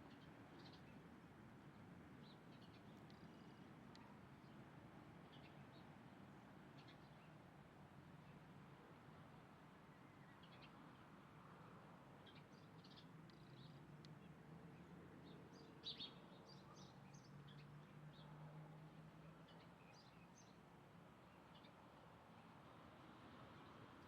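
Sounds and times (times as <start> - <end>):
small birds chirping: 2.2 - 4.6, 12.2 - 18.3.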